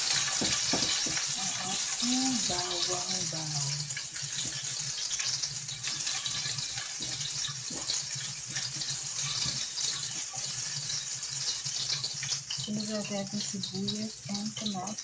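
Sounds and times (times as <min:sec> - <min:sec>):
garlic sizzling in oil: 0:00.0 - 0:15.0.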